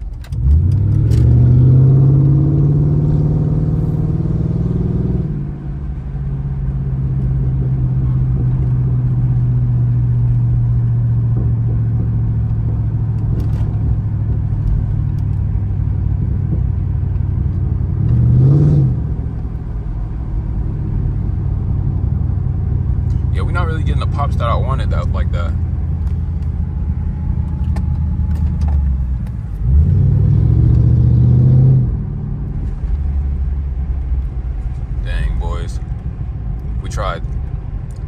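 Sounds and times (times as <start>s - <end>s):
car engine revving: 0.3s - 38.0s.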